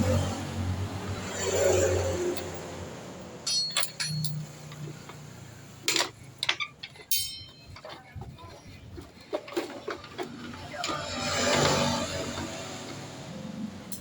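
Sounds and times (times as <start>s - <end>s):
sharp metallic clinks: 1.3s - 8.2s.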